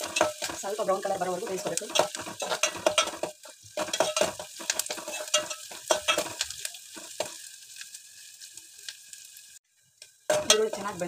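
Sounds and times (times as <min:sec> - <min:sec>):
spoon stirring in metal pot: 0:00.0 - 0:07.4, 0:10.3 - 0:11.0
onions sizzling in oil: 0:00.0 - 0:11.0.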